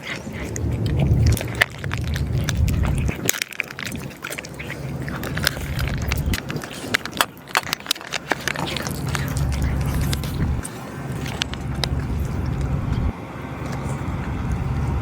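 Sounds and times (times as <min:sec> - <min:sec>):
cat crunching dry food: 0:00.0 - 0:15.0
low rumble: 0:00.3 - 0:04.2, 0:08.7 - 0:15.0.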